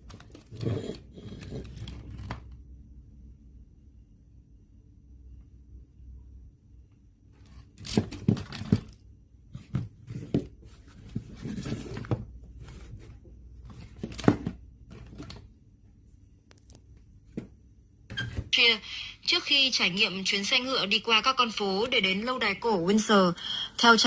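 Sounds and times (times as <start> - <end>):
rustling scraping and clicking: 9.6 - 14.3.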